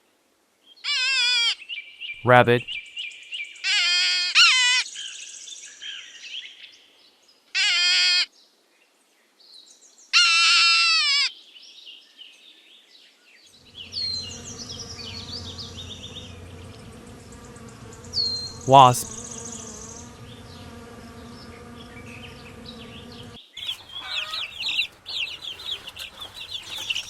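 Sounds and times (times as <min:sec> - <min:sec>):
wasp buzzing: 0:13.6 - 0:27.0
bird chirps: 0:13.7 - 0:27.0
high wavering animal calls: 0:13.7 - 0:27.0.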